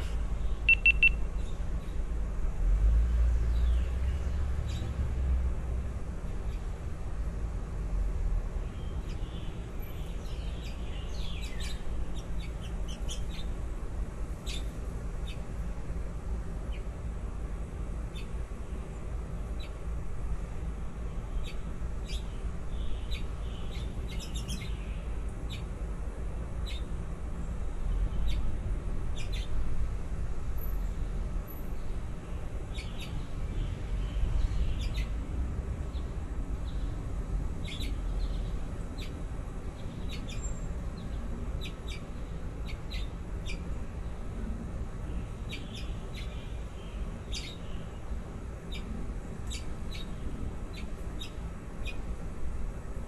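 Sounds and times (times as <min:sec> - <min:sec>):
baby birds cheeping: 0:00.0 - 0:01.6, 0:32.7 - 0:35.2, 0:37.6 - 0:43.7, 0:45.0 - 0:52.1.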